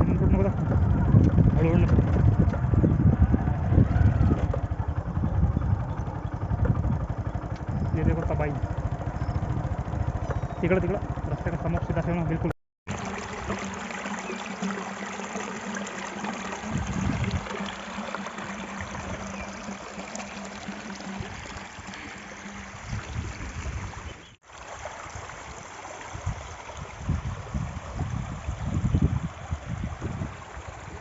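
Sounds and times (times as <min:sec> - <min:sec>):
low hum: 0:00.0 - 0:24.2
floodwater rushing: 0:12.9 - 0:31.0.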